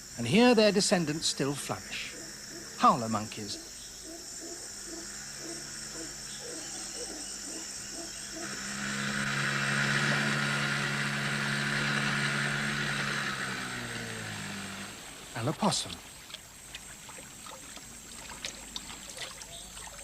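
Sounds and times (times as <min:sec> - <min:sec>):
insects trilling: 0:00.0 - 0:20.0
howler monkeys roaring: 0:01.0 - 0:16.1.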